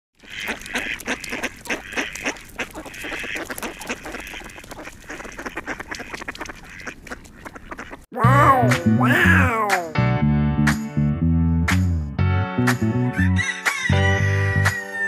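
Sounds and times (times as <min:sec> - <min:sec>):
birds calling: 0:00.2 - 0:08.1.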